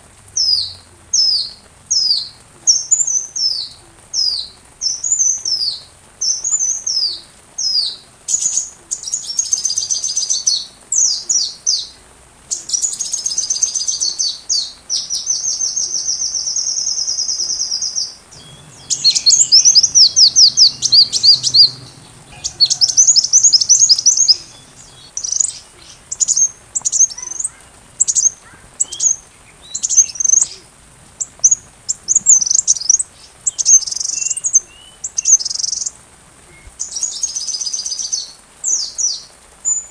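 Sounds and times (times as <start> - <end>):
sunbird chirps and trills: 18.4 - 38.2.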